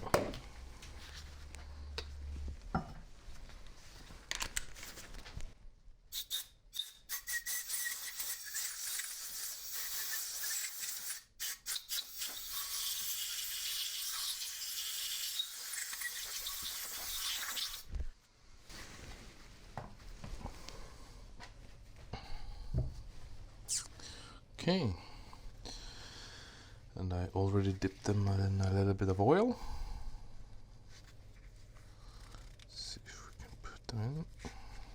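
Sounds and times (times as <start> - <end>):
hissing rubbing of cleaning: 6.1 - 17.9.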